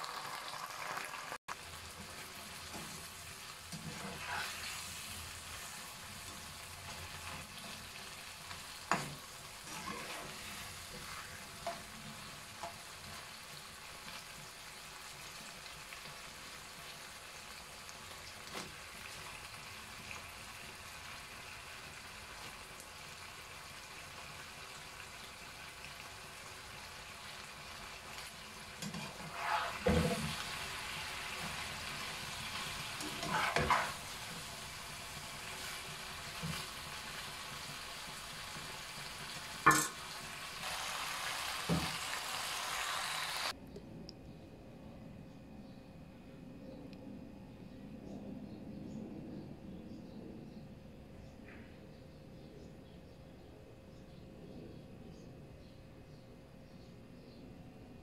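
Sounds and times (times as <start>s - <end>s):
food sizzling in a wok: 0.0s - 43.6s.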